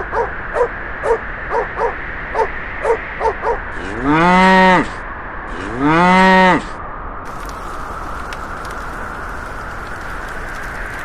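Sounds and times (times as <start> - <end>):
steady hiss: 7.3 - 11.0.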